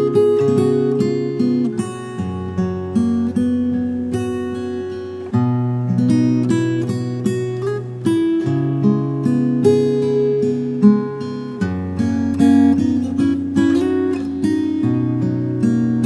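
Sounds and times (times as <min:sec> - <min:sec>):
acoustic guitar instrumental: 0:00.0 - 0:16.0.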